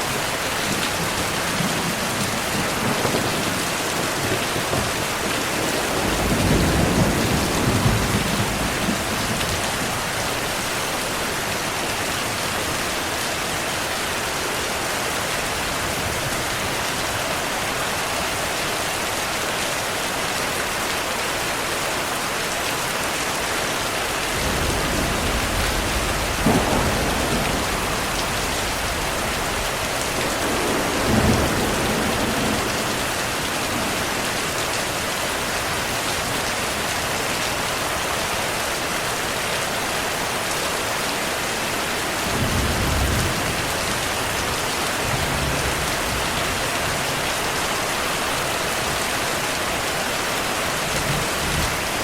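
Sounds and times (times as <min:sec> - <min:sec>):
heavy rain: 0:00.0 - 0:52.0
thunder rumbling and cracking: 0:00.6 - 0:10.6, 0:24.2 - 0:35.0, 0:42.2 - 0:47.2.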